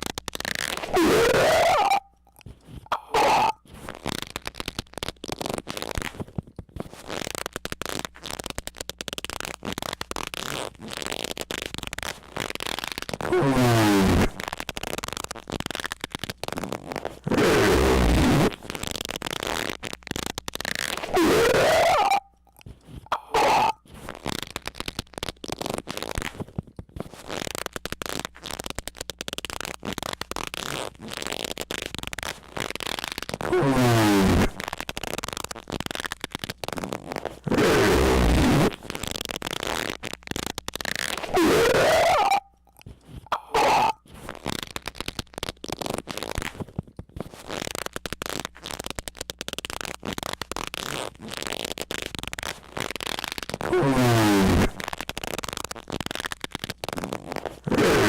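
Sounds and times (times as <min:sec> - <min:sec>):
irregular crackling and sputtering: 0:00.0 - 0:58.0
loud high-pitched squeak: 0:00.8 - 0:02.1, 0:02.9 - 0:03.6, 0:20.9 - 0:22.3, 0:23.1 - 0:23.8, 0:41.2 - 0:42.5.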